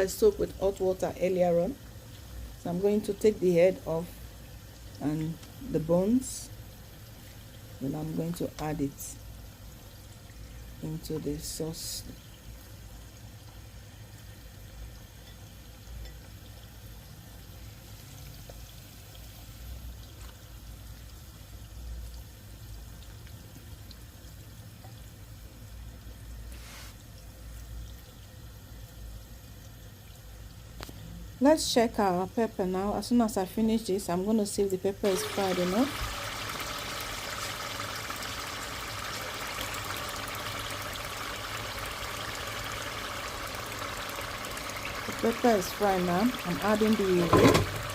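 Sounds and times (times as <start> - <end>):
sauce sizzling in oil: 0.0 - 23.2, 33.7 - 47.9.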